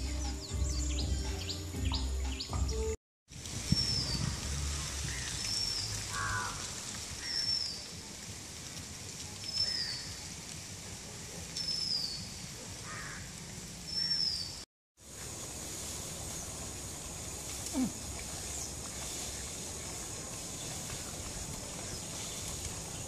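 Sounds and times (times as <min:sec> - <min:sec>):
steady high hiss: 0:15.0 - 0:23.0.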